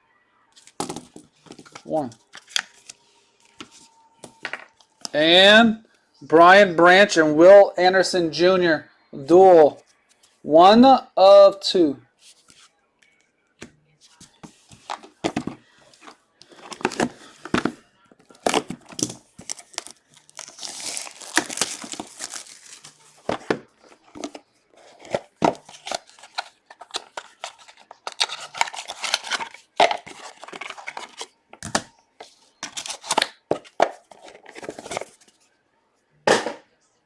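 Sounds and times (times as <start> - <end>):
packaging tearing and crinkling: 18.4 - 24.3, 25.0 - 31.8.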